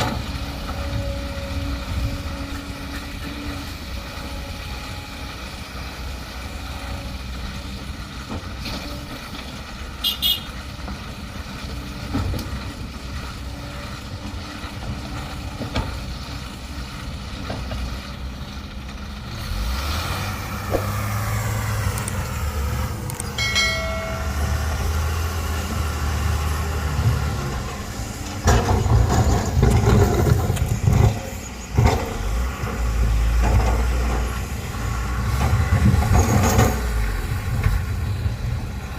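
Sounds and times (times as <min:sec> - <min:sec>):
heavy diesel machinery running: 0:00.0 - 0:38.9
loud knocks and rattling: 0:28.4 - 0:31.2.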